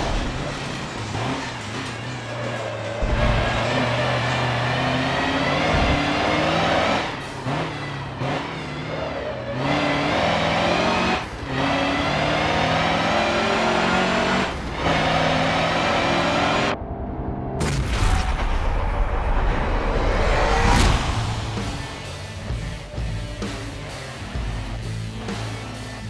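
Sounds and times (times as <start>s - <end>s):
truck diesel engine pulling hard: 0.0s - 16.8s
music: 20.5s - 26.0s.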